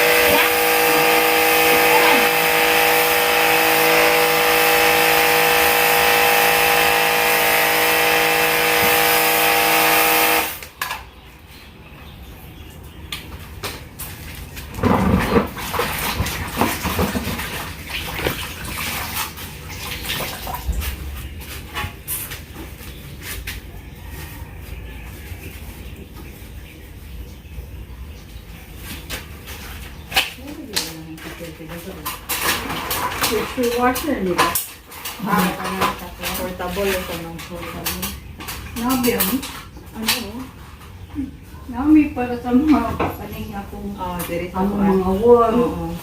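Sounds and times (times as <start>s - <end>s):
pressure washer motor whine: 0.0s - 10.7s.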